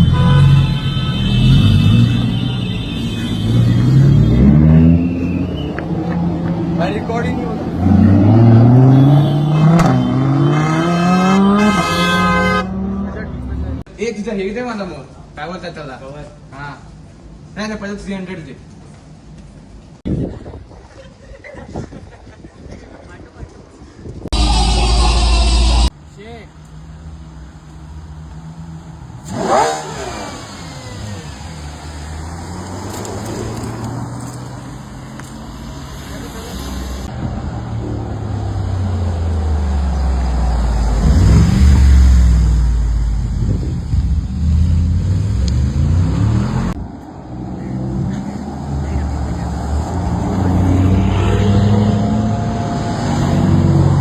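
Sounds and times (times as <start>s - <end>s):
car engine revving: 3.4s - 13.8s, 27.0s - 54.0s.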